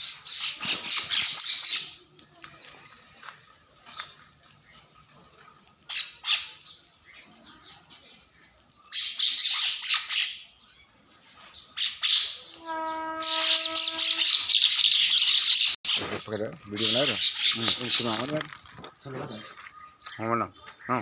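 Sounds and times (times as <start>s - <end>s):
birds squawking: 0.0s - 2.0s, 5.8s - 7.3s, 11.6s - 21.0s.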